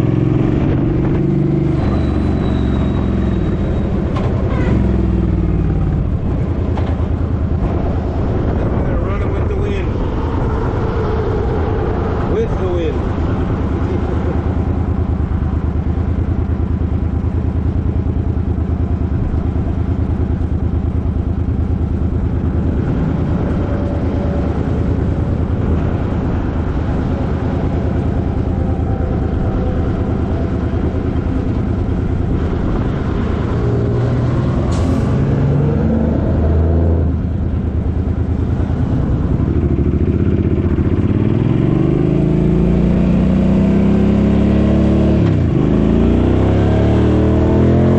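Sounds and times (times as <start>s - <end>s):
motorcycle engine running: 13.3s - 34.2s, 37.0s - 47.6s.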